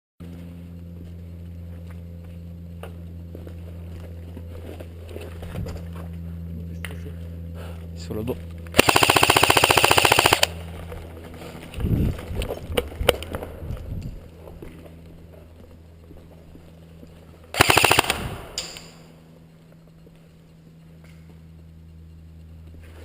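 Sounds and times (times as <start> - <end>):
sharp clicks: 8.7 - 10.6, 17.6 - 19.0
airsoft gun firing bursts: 8.8 - 10.6, 17.5 - 18.9.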